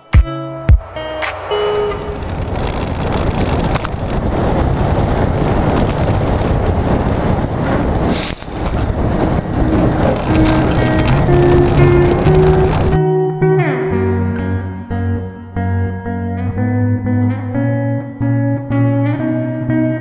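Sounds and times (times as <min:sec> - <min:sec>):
car engine at full throttle: 0:00.8 - 0:13.0
wind buffeting microphone: 0:00.8 - 0:13.2.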